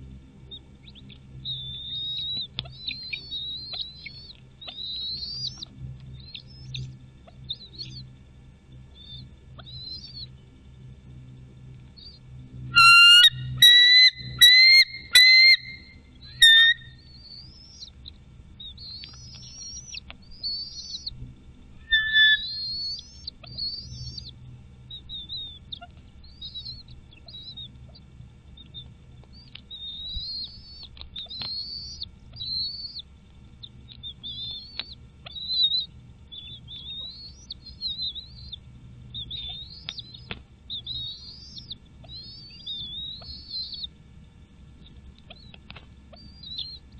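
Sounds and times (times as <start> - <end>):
birds chirping: 0.5 - 44.1, 44.7 - 46.9
loud piercing whistled notes: 12.7 - 16.9, 21.8 - 22.8.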